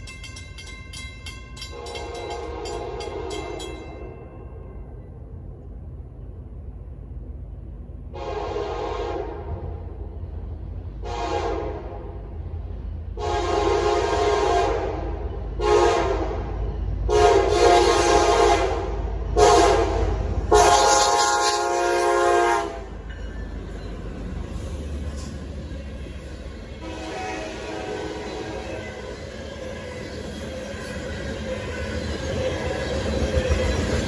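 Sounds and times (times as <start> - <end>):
train rumbling: 0.0 - 34.0
locomotive air horn blasts: 1.7 - 3.6, 8.2 - 9.7, 11.0 - 12.1, 13.2 - 16.5, 17.1 - 23.0, 26.8 - 28.9.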